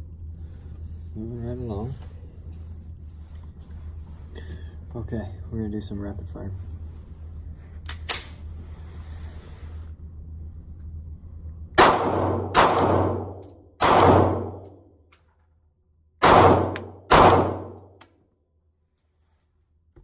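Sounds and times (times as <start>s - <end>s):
pistol shots with echo: 11.8s - 14.6s, 16.2s - 17.8s.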